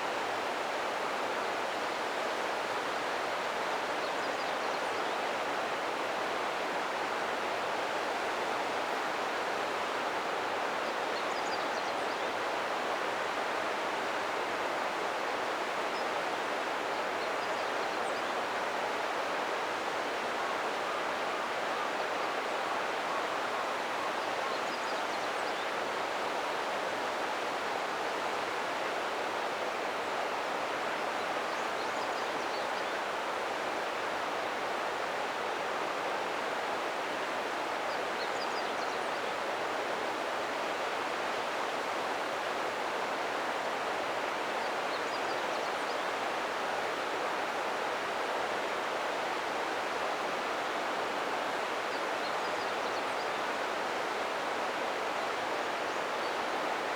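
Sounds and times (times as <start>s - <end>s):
river flowing: 33.0s - 56.9s.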